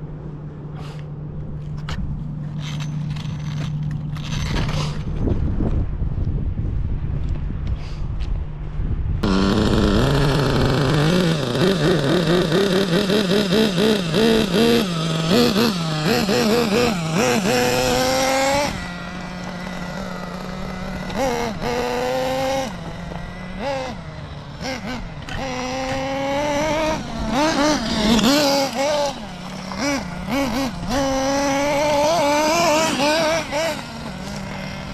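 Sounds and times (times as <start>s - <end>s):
model car engine revving: 9.2s - 34.9s.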